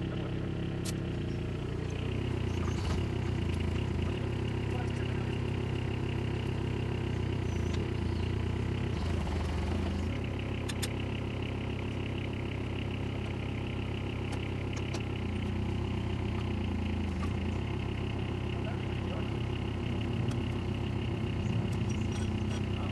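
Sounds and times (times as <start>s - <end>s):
diesel engine idling: 0.0s - 22.9s
sharp metallic clicks: 0.7s - 1.2s, 10.4s - 11.1s.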